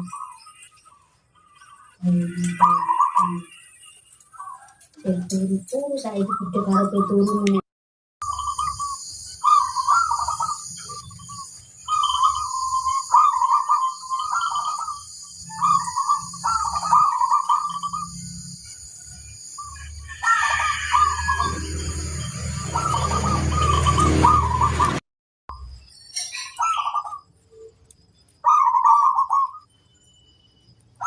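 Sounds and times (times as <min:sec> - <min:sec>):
dove cooing trilled phrases: 0:01.4 - 0:07.4, 0:08.2 - 0:18.2, 0:26.5 - 0:27.2, 0:28.4 - 0:29.6.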